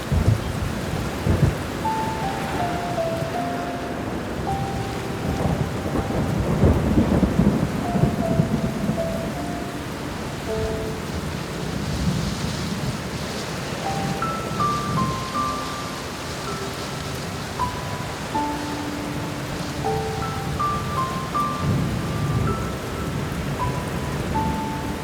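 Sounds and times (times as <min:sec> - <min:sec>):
thunder rolling: 0:00.0 - 0:15.6, 0:19.5 - 0:25.0
soft piano notes: 0:00.0 - 0:25.0
steady rain: 0:00.0 - 0:25.0.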